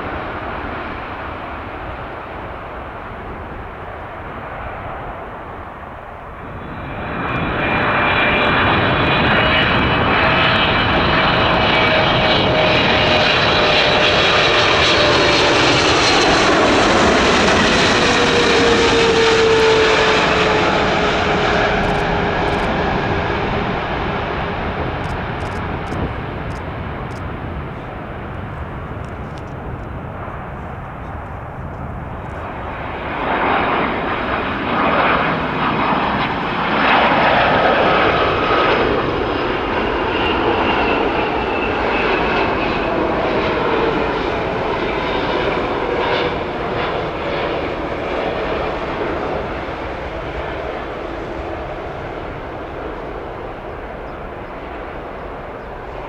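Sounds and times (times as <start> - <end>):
jet engines roaring: 0.0 - 56.0
high engine whine: 8.0 - 36.8.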